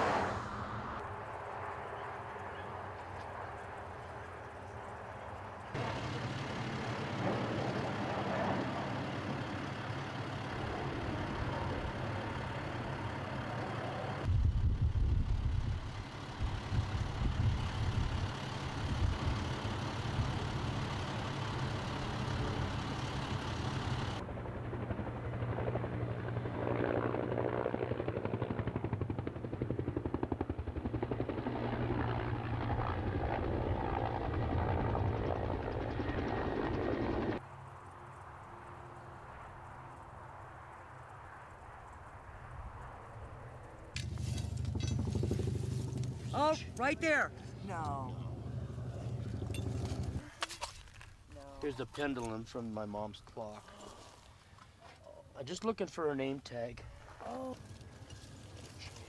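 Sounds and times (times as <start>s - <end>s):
aircraft engine noise: 0.0s - 51.0s
heavy gusting low rumble: 14.2s - 19.4s, 42.5s - 50.2s.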